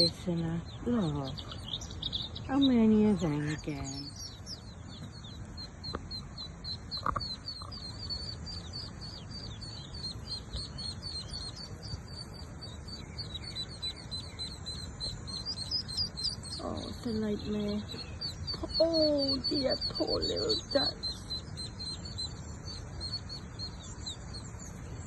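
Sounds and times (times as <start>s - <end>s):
ducklings peeping: 0.0s - 25.0s
low background rumble: 0.0s - 25.0s.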